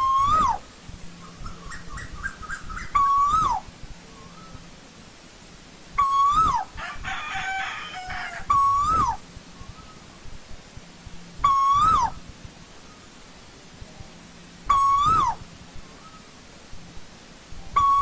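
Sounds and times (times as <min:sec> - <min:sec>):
bird whistled calls: 0:00.0 - 0:00.6, 0:01.2 - 0:04.7, 0:06.0 - 0:06.7, 0:07.4 - 0:10.0, 0:11.4 - 0:12.2, 0:14.7 - 0:15.4, 0:17.7 - 0:18.0
bird chattering call: 0:01.2 - 0:03.6, 0:06.0 - 0:06.7, 0:11.4 - 0:12.2, 0:14.7 - 0:15.4, 0:17.8 - 0:18.0.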